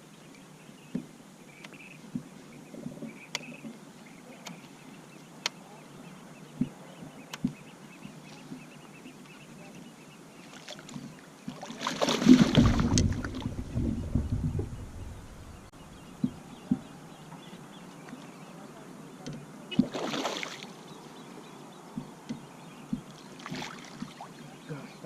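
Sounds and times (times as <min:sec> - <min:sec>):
loud rushing splashing water: 0:11.8 - 0:15.7.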